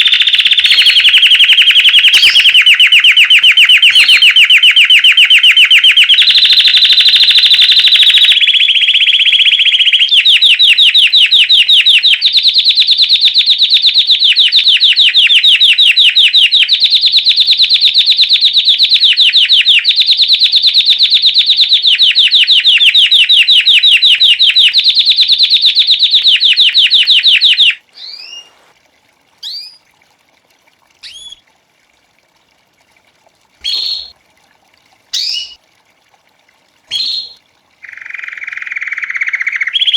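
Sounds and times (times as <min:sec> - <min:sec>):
short bird chirps: 0:00.0 - 0:10.4, 0:26.3 - 0:28.7, 0:29.4 - 0:29.8, 0:31.0 - 0:31.4, 0:33.6 - 0:34.1, 0:35.1 - 0:35.6, 0:36.9 - 0:39.9
canary trilling: 0:00.0 - 0:12.4, 0:23.0 - 0:28.7, 0:29.4 - 0:29.8, 0:31.0 - 0:31.4, 0:33.6 - 0:34.1, 0:35.1 - 0:35.6, 0:36.9 - 0:39.9.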